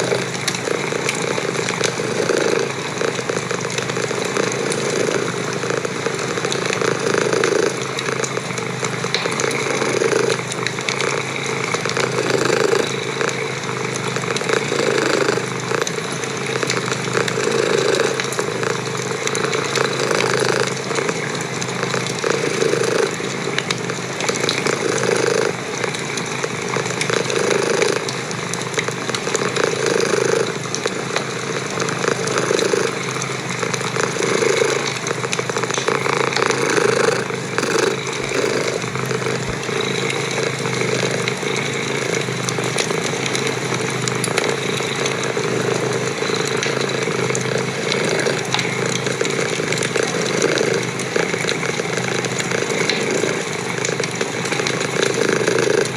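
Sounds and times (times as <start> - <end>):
cat purring: 0.0 - 7.8, 9.8 - 10.4, 12.1 - 13.0, 14.7 - 15.9, 17.2 - 18.8, 31.8 - 40.2
wood fire crackling: 31.8 - 40.3.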